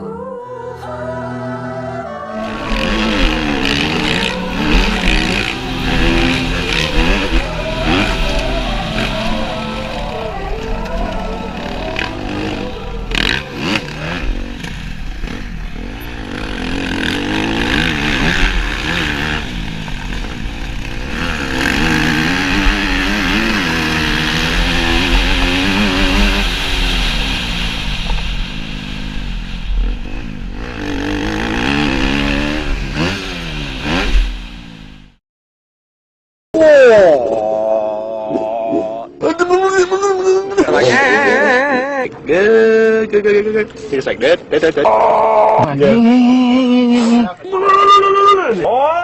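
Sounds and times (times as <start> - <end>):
motorbike engine revving: 2.0 - 35.2
steady rushing noise: 2.4 - 35.1.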